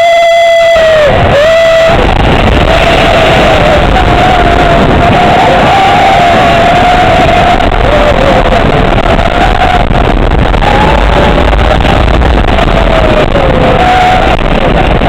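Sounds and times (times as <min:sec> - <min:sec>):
wind buffeting microphone: 0:00.8 - 0:15.0
roller coaster wheels roaring: 0:00.9 - 0:15.0.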